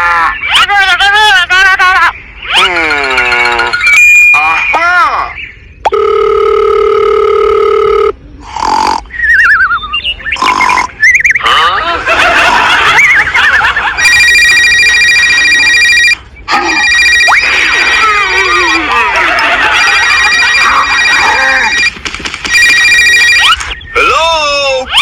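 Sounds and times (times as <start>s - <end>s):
buzzy electronic beep: 7.6s - 11.5s, 14.0s - 18.9s, 19.5s - 22.0s.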